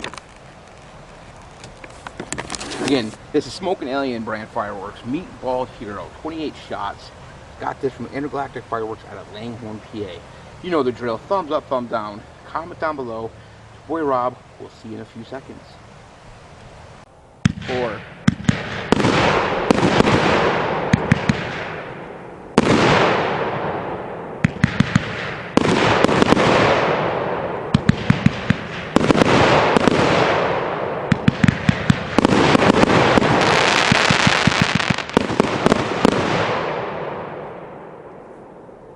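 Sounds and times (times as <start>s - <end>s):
firework hissing: 0.0s - 21.8s, 31.1s - 36.6s
firework shots in volleys: 17.4s - 38.1s.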